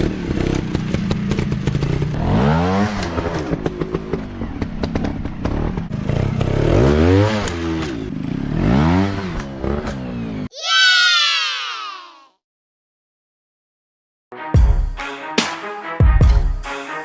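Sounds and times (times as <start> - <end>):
dirt bike engine revving: 0.0 - 10.5.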